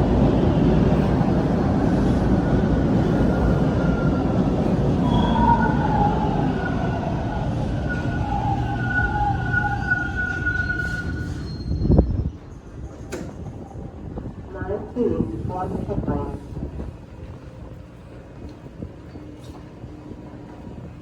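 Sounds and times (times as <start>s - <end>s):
subway train rumbling: 0.0s - 21.0s.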